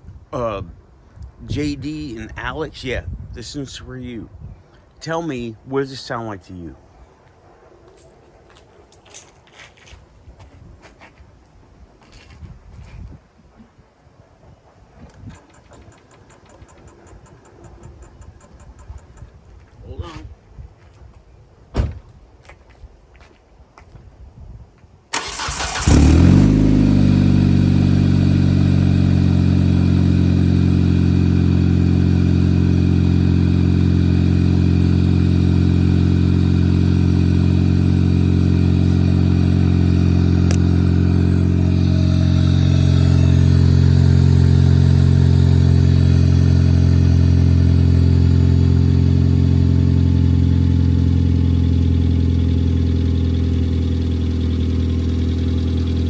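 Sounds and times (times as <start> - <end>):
starter motor cranking: 15.1 - 19.2, 25.1 - 26.4
car engine idling: 15.1 - 19.5, 25.2 - 56.0
valve-train ticking noise: 15.4 - 19.3.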